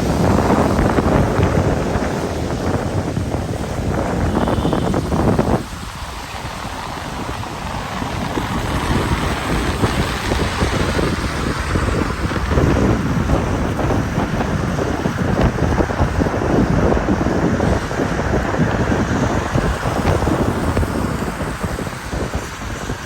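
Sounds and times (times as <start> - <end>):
rain hiss: 0.0 - 23.0
wind buffeting microphone: 0.0 - 23.0.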